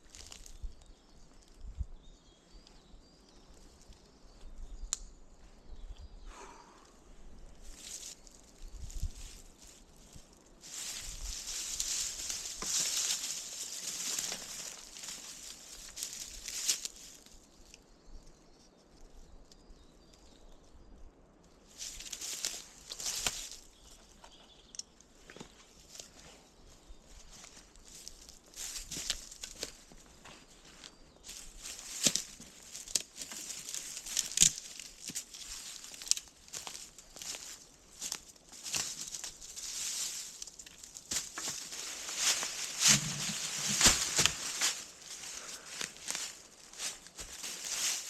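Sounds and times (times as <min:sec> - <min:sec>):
twigs cracking: 0:00.0 - 0:00.7, 0:07.6 - 0:17.8, 0:21.7 - 0:26.3, 0:27.2 - 0:48.0
dry leaves and twigs rustling: 0:00.0 - 0:04.8, 0:07.3 - 0:20.6, 0:21.5 - 0:48.0.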